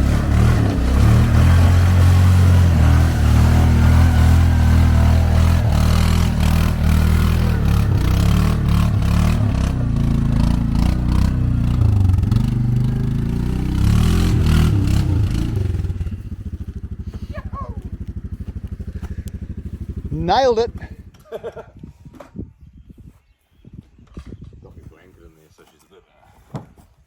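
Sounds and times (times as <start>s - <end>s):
vehicle engine running: 0.0s - 21.2s.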